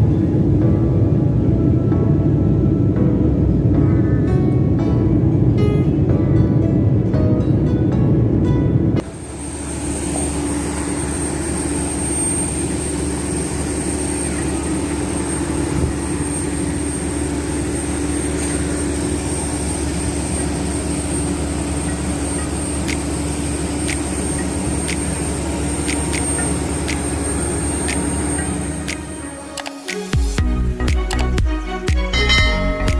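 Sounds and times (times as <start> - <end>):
jet engine drone in cabin: 0.0 - 30.0
thin high whine: 9.0 - 29.6.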